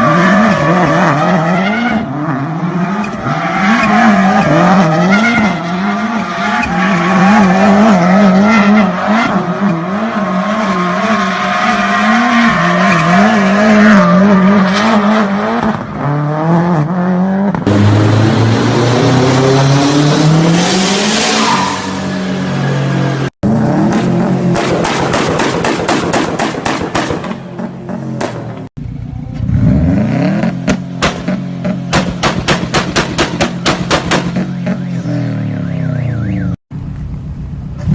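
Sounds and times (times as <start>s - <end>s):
car engine revving: 0.0s - 28.7s
rapid exhaust pops: 30.7s - 34.5s.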